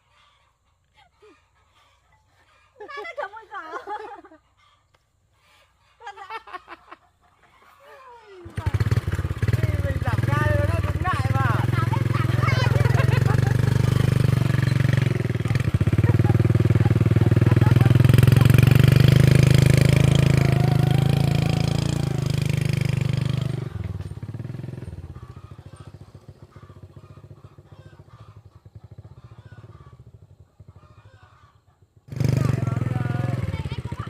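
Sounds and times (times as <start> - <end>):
small motorbike engine running: 8.4 - 34.0.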